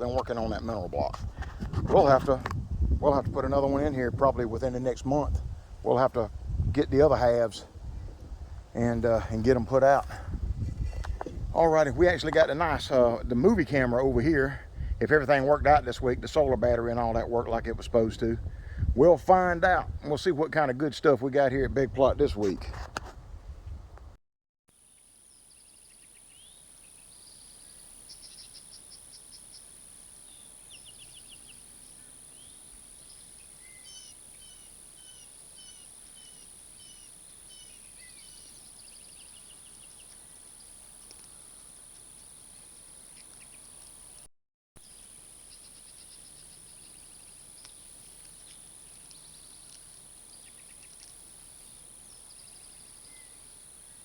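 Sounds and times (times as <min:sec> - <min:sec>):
songbirds calling: 0:25.3 - 0:44.2, 0:44.8 - 0:54.0.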